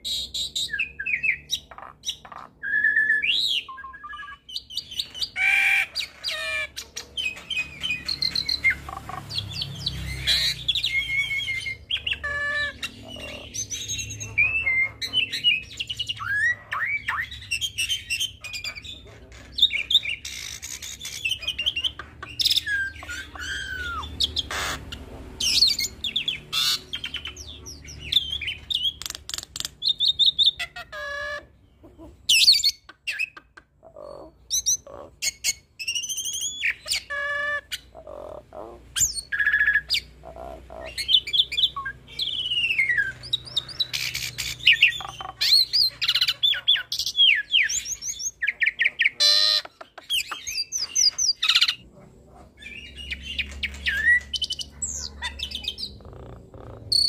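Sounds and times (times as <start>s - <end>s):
starling singing varied song: 0.0s - 19.0s.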